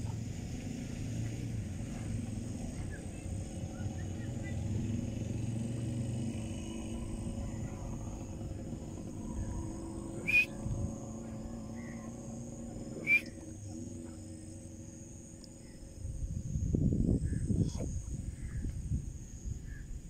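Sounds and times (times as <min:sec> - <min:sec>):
steady low rumble: 0:00.0 - 0:20.0
sharp bird calls: 0:06.6 - 0:13.9.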